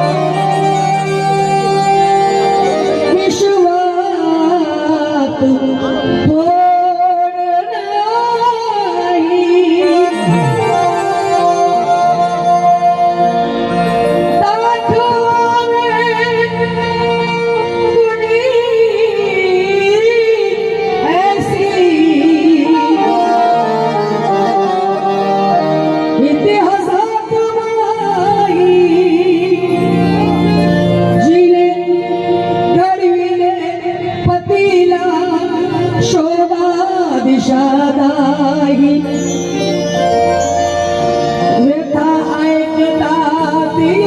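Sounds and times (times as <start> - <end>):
sustained instrumental accompaniment: 0.0 - 44.0
person singing ornamented notes: 9.8 - 12.2.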